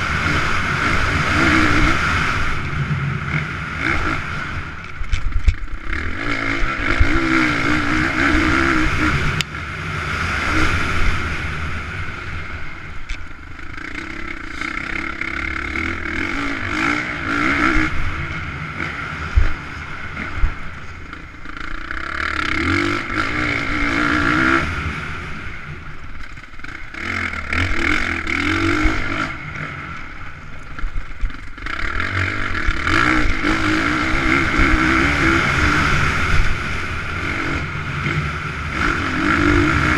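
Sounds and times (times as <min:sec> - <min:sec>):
dirt bike engines revving: 0:00.0 - 0:39.9.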